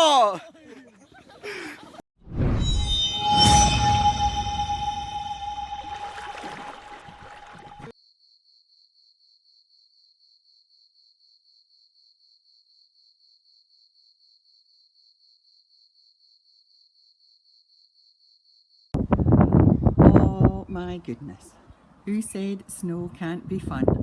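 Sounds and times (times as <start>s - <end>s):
steady tone: 2.4s - 7.9s
high insect-like chirp: 8.0s - 18.9s.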